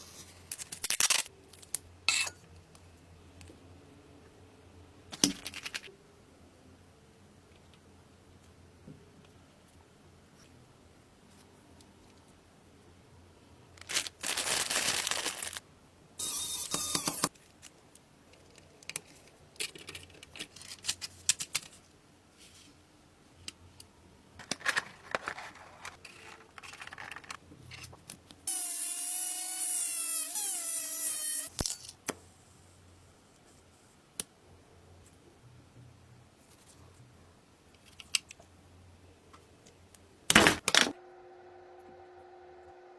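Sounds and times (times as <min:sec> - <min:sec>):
small motor whining: 0:16.2 - 0:17.3, 0:28.5 - 0:31.5.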